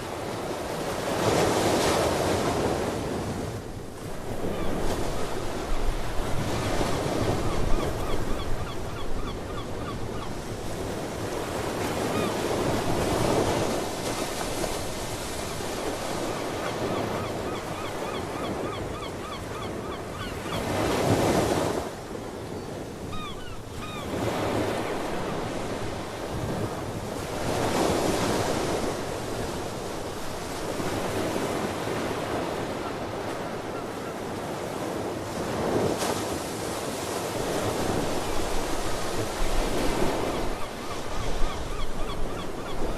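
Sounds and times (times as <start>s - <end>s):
seabirds chirping: 22.6s - 24.5s.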